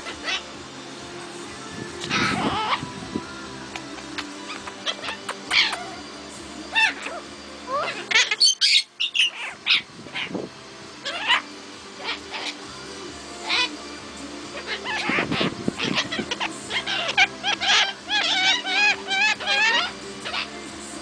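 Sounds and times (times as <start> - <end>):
birds chirping and squawking: 0.0 - 21.0.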